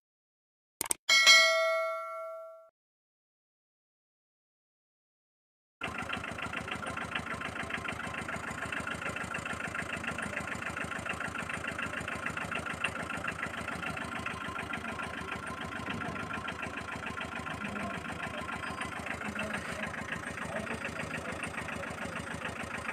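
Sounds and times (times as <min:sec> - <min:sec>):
small engine idling: 0:05.8 - 0:22.9.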